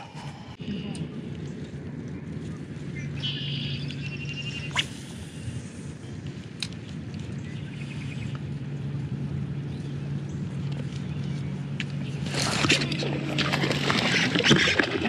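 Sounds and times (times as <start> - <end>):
steady low hum: 0.0 - 15.0
small birds chirping: 0.6 - 9.0.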